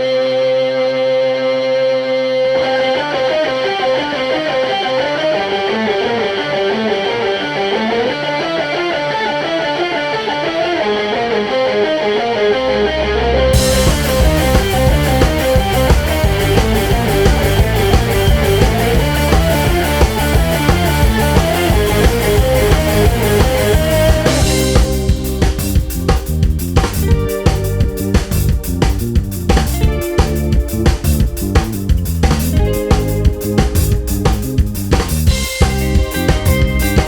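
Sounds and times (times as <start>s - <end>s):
plucked guitar line: 0.1s - 37.0s
bass guitar: 10.5s - 37.0s
held chord tones: 11.9s - 26.3s
drums: 12.2s - 37.0s.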